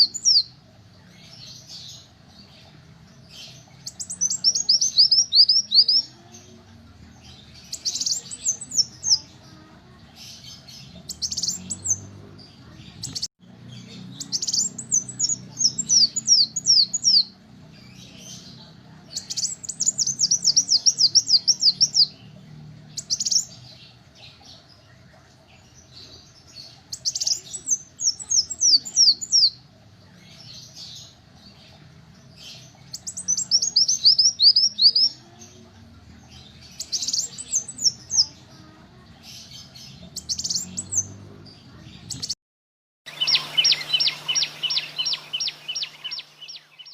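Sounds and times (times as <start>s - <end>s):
bird twittering: 43.1s - 46.9s
sunbird singing high falling notes: 43.1s - 46.9s.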